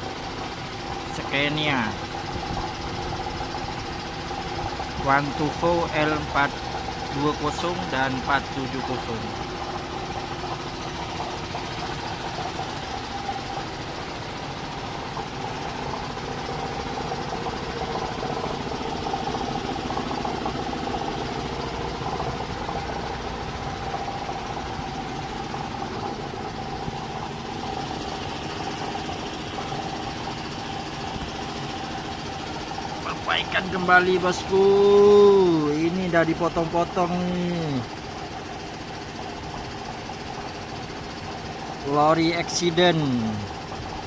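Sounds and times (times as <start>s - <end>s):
engine idling: 0.0s - 44.0s.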